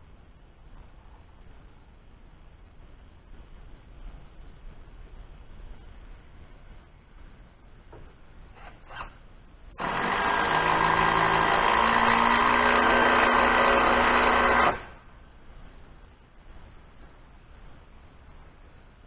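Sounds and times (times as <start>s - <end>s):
small power tool motor running: 9.8s - 14.9s.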